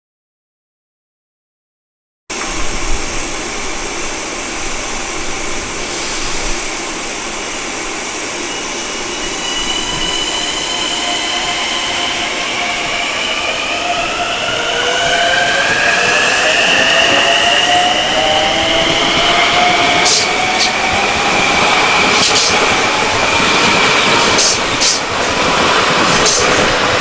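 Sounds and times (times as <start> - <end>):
train running: 2.3 - 27.0
rising multi-tone whine: 6.7 - 24.8.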